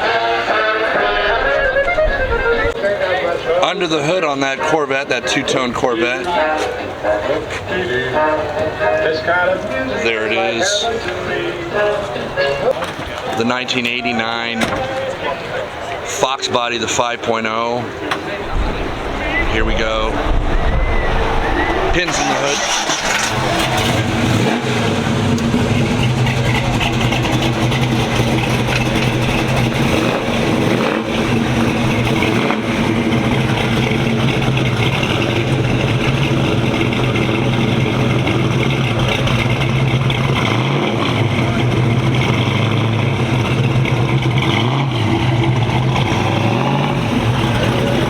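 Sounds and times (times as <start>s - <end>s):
car engine idling: 17.4s - 48.0s.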